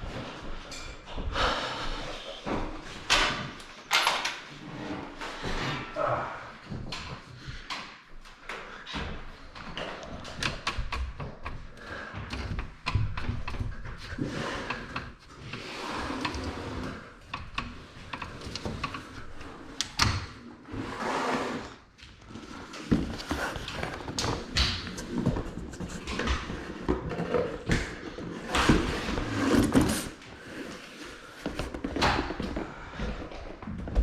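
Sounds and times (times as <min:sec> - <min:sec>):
knocks and thunks of handling: 0:22.8 - 0:30.2.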